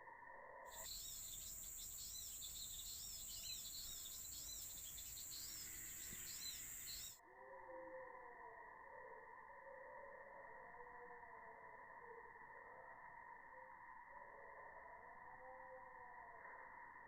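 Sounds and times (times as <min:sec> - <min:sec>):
high-pitched insect drone: 0:00.2 - 0:17.0
small birds chirping: 0:00.7 - 0:07.2.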